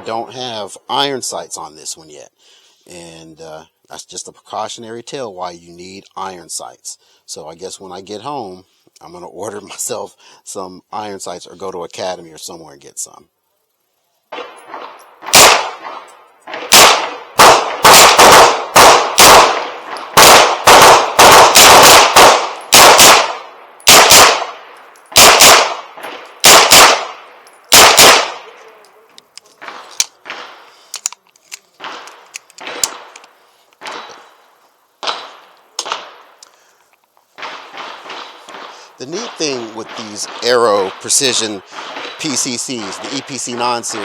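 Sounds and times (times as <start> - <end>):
gunshots: 14.3 - 28.7, 29.6 - 30.7, 31.8 - 33.2, 35.0 - 36.4, 37.4 - 44.0.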